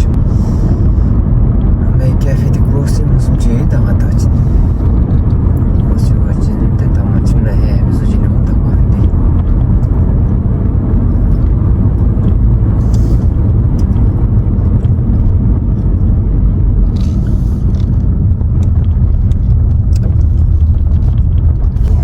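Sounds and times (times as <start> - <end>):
car driving interior rumble: 0.0 - 22.0.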